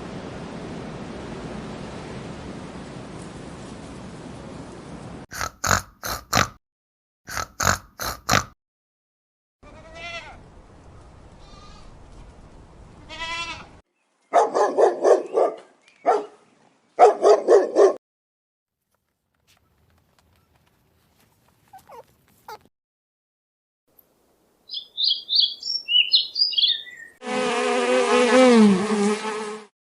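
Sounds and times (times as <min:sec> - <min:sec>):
animal bleating: 0:09.6 - 0:10.4, 0:11.4 - 0:11.9, 0:13.1 - 0:13.8, 0:21.7 - 0:22.6.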